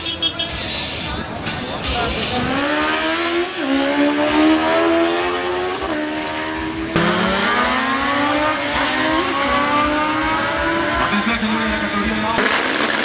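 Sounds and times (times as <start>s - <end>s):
engine revving through gears: 2.4s - 11.8s.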